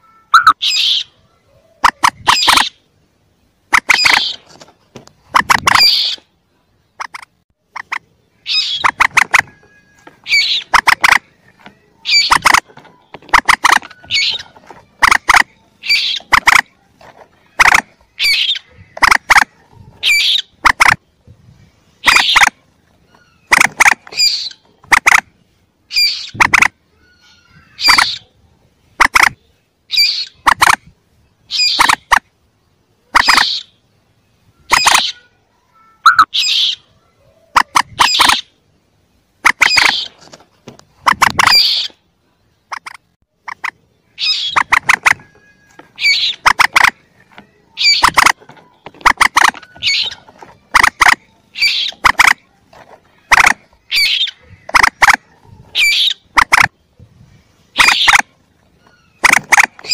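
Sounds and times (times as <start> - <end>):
young moorhen chirps: 0.0 - 2.9, 3.7 - 4.5, 5.2 - 6.3, 6.9 - 25.3, 25.9 - 32.2, 33.0 - 38.7, 39.4 - 40.2, 41.0 - 42.0, 42.6 - 59.9.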